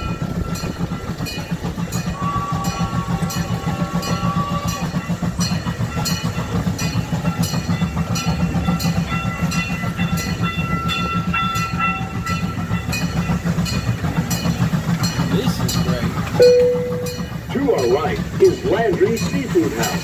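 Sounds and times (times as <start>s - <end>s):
model train engine rumble: 0.0s - 20.0s
wheels clicking over rail joints: 0.0s - 20.0s
faint thin high tones: 16.4s - 17.3s.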